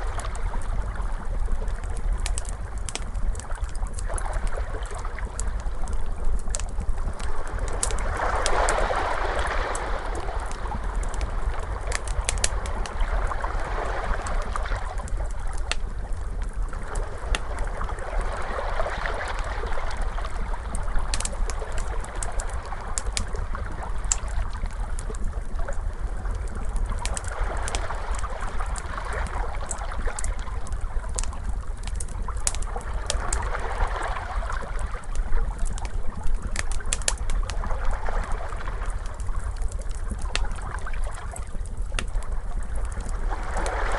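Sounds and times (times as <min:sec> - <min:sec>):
crackling fire: 0:00.0 - 0:43.9
ocean waves washing in: 0:07.4 - 0:15.2, 0:16.9 - 0:24.5, 0:43.2 - 0:43.9.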